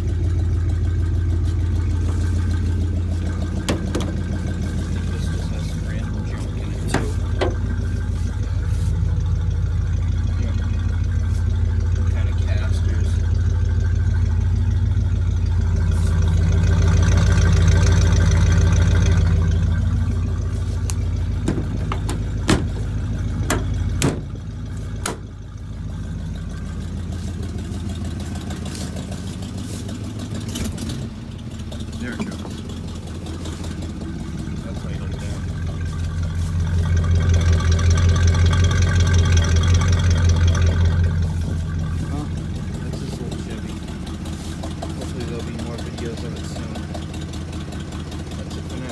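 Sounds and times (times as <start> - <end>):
engine fast idling: 0.0 - 48.9
metal junk knocking and clanking: 2.2 - 5.0, 6.2 - 7.9, 21.1 - 25.4.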